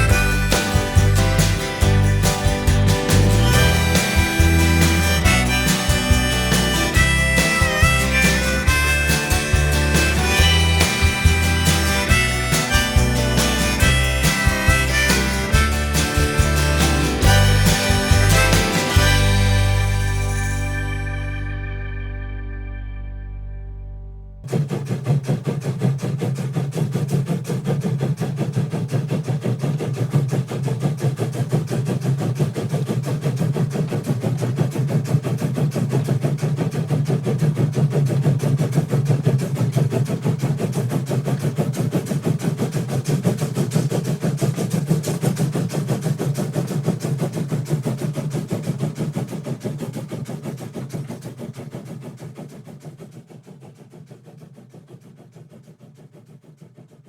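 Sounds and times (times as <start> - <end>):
train rumbling: 0.0 - 23.3.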